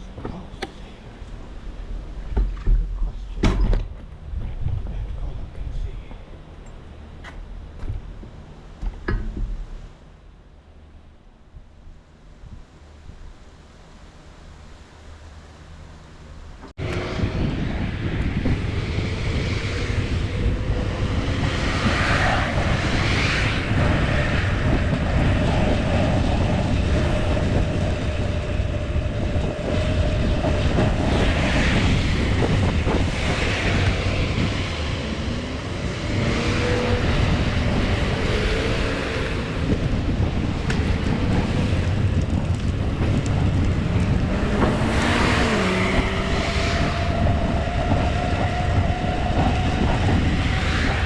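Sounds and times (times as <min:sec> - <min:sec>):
wind buffeting microphone: 0:00.0 - 0:09.9, 0:16.7 - 0:51.0
traffic passing: 0:16.8 - 0:51.0.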